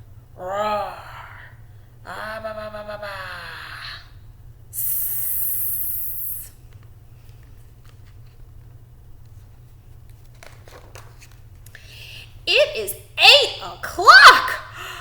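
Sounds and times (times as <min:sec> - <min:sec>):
woman hissing: 0:04.8 - 0:06.6.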